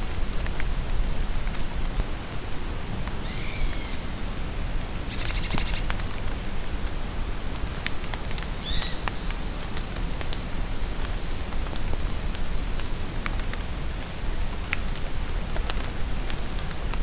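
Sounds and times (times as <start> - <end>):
rain falling in forest: 0.0 - 17.0
songbirds calling: 2.0 - 4.3, 5.1 - 7.2, 8.4 - 9.7.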